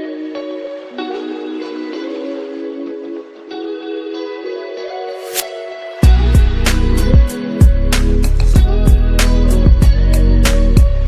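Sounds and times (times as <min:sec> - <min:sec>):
sustained guitar notes: 0:00.0 - 0:11.0
heavy bass and drum beat: 0:06.0 - 0:11.0.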